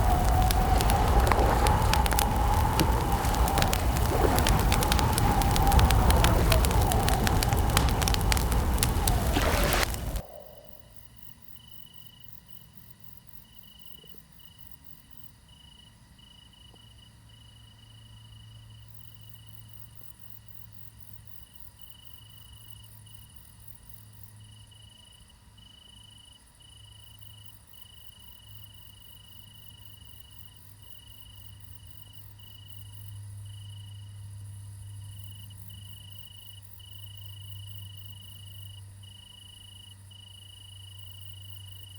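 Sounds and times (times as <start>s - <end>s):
crickets chirping: 0.0s - 12.2s, 29.0s - 41.9s.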